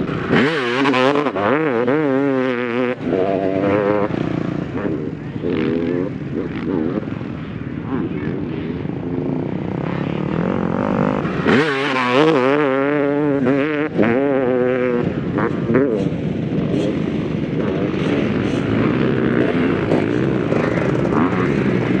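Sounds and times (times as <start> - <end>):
motocross bike engine revving: 0.0 - 22.0.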